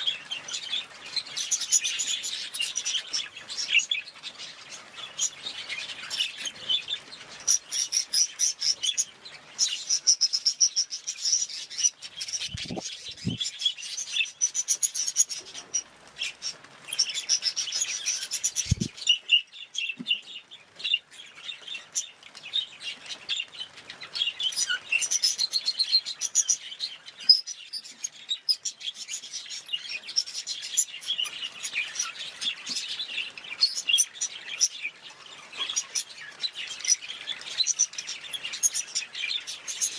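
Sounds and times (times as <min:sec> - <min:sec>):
budgerigars chirping: 0:00.0 - 0:20.2.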